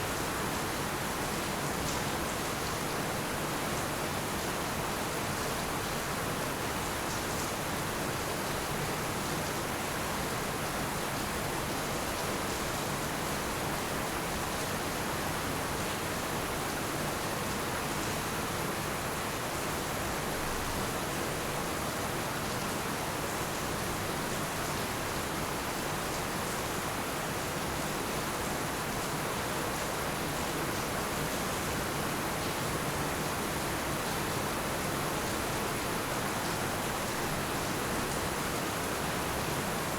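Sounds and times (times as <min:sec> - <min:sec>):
heavy rain on roofs: 0:00.1 - 0:39.9.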